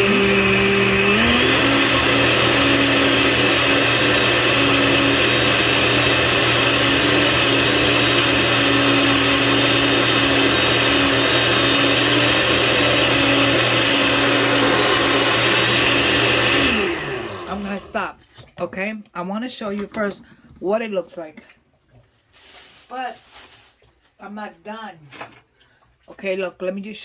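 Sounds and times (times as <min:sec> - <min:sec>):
blender running: 0:00.0 - 0:18.1.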